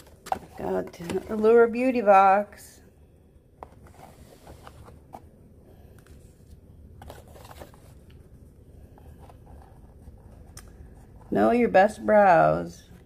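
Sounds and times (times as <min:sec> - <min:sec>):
paper cards rustling: 0:06.0 - 0:08.2.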